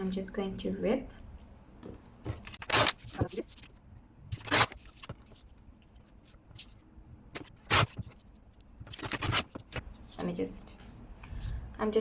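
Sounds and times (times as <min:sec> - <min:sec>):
paper tearing: 0:02.4 - 0:03.7, 0:04.3 - 0:05.4, 0:07.4 - 0:08.2, 0:08.9 - 0:10.3
paper crackling: 0:07.4 - 0:11.0.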